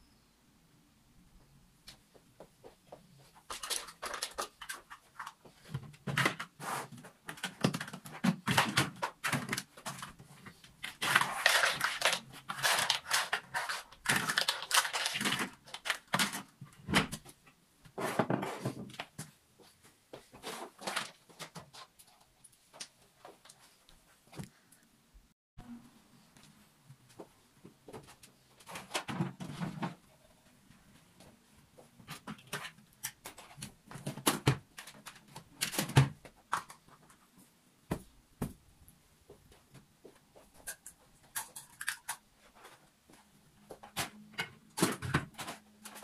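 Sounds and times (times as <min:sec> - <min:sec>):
household things rustling and clattering: 0:01.9 - 0:24.6, 0:26.3 - 0:38.6, 0:39.3 - 0:46.0.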